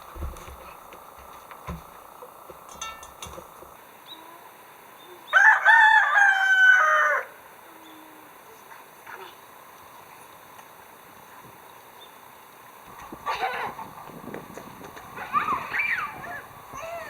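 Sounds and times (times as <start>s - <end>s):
faint knocks: 0.0s - 3.8s
rooster crowing: 5.2s - 7.5s, 15.1s - 17.0s.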